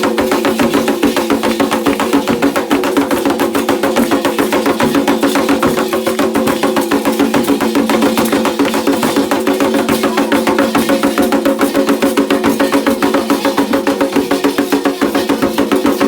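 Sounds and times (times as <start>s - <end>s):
clicking percussion: 0.0s - 16.0s
hand drums fast beat: 0.0s - 16.0s.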